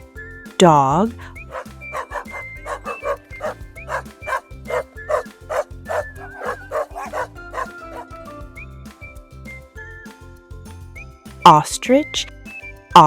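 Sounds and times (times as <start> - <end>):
light background music: 0.0 - 13.0
dog barking sharply: 1.5 - 8.0.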